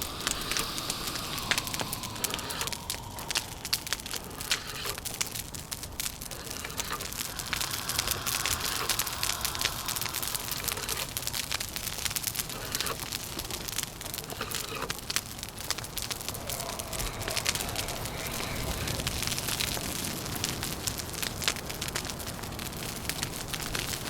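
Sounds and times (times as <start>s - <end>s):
wind rushing: 0.0s - 5.8s, 6.8s - 12.0s, 15.6s - 20.7s
wood fire crackling: 0.0s - 24.0s.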